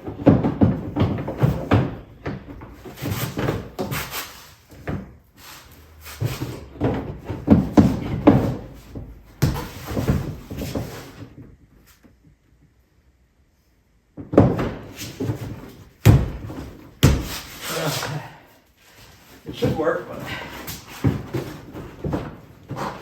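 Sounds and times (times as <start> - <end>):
plastic clunks and rattles: 0.0 - 3.9.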